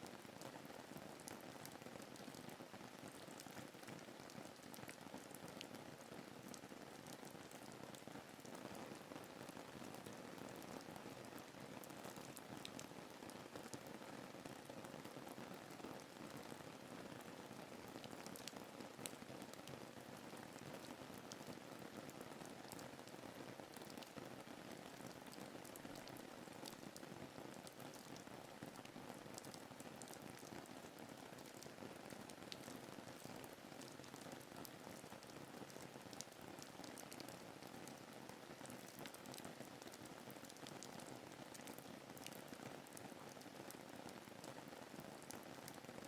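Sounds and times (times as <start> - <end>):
soft rain hiss: 0.0 - 46.0
rain drop ticks: 38.7 - 40.8.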